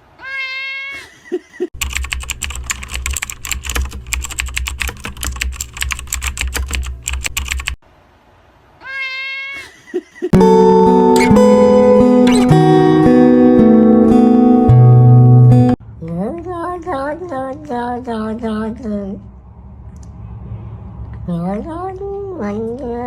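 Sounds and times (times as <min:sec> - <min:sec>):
cat meowing: 0:00.2 - 0:01.0, 0:08.8 - 0:09.7
keyboard typing: 0:01.8 - 0:07.8
music: 0:10.4 - 0:15.8.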